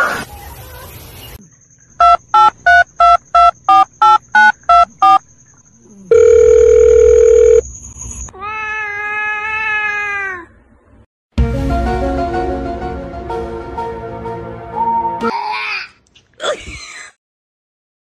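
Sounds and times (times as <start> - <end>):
long beep: 2.0 - 5.2, 6.1 - 7.6
telephone keypad dialling beeps: 2.0 - 5.2, 6.1 - 7.6.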